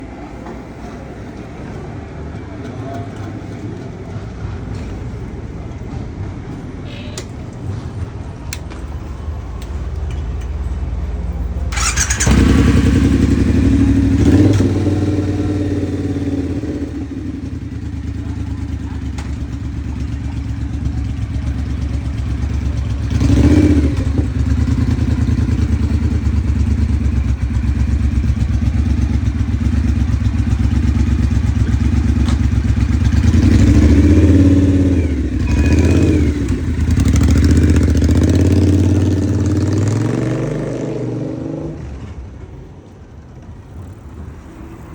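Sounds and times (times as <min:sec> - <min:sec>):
motorcycle engine revving: 0:11.7 - 0:42.2.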